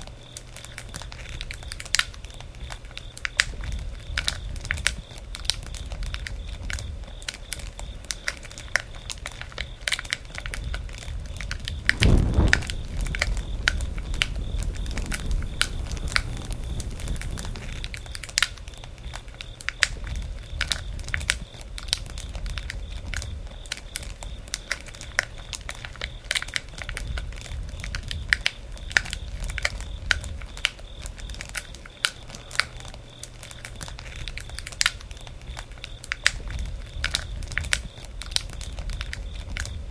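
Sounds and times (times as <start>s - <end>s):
brief low rumble: 11.8s - 18.0s
campfire crackling and popping: 11.8s - 18.1s.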